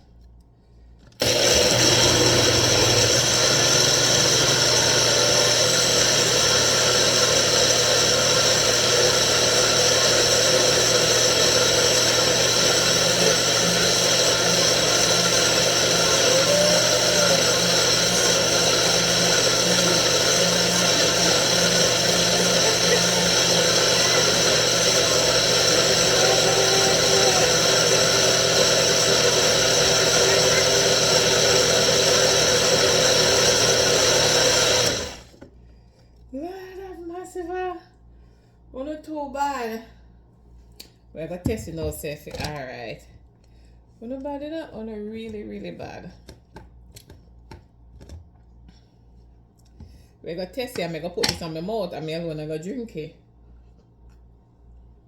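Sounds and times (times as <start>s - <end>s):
electric blender running: 1.2s - 35.4s.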